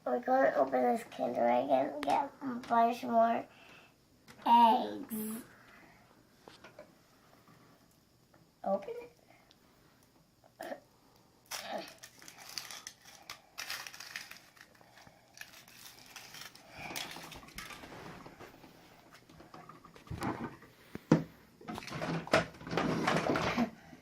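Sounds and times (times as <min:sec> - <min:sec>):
foil wrapper crinkling and tearing: 0:11.5 - 0:18.0.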